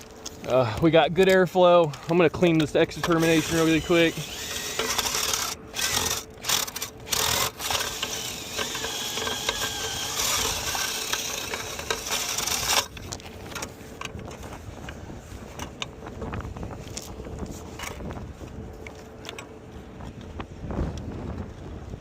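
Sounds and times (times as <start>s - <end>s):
power drill running: 3.0s - 12.9s.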